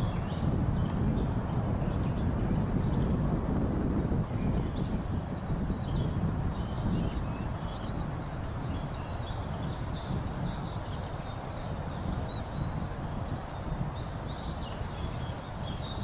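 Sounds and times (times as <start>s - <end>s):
small songbirds chirping: 0.0s - 16.0s.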